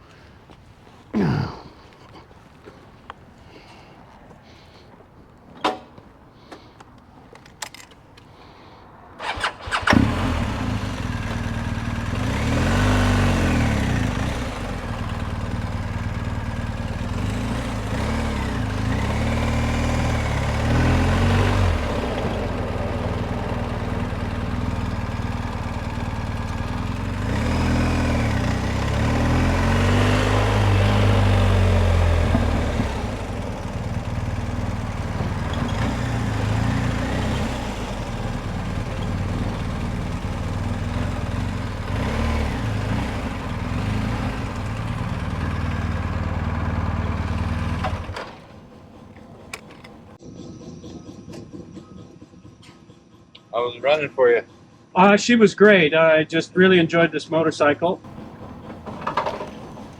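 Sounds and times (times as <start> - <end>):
motorcycle engine clicks: 5.4 - 8.4, 47.8 - 50.2, 58.1 - 59.9
motorcycle engine revving: 9.2 - 52.6, 58.0 - 59.9.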